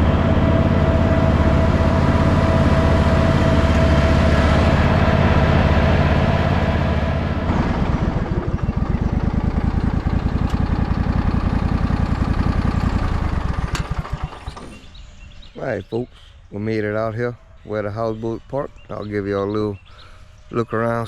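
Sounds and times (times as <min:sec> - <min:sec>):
lawnmower engine running: 0:00.0 - 0:15.0.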